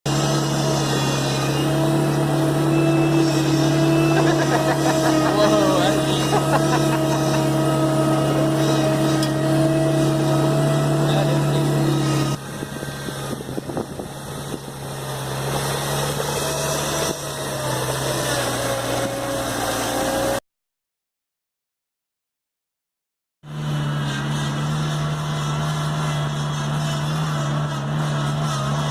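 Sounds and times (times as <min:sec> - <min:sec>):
swamp truck engine running: 0:00.0 - 0:20.4, 0:23.5 - 0:28.9.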